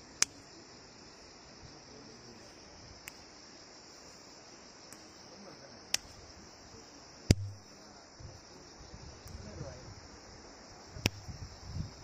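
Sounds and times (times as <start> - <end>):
crickets chirring: 0.0 - 12.0
sharp pops of flowers: 5.9 - 6.2, 7.3 - 7.7, 11.0 - 11.3
short low thud: 7.3 - 7.6.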